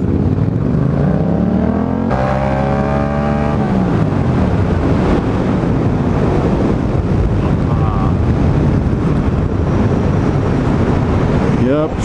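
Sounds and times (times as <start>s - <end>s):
motorcycle engine revving: 0.0s - 7.0s
wind rush on microphone: 0.0s - 12.0s.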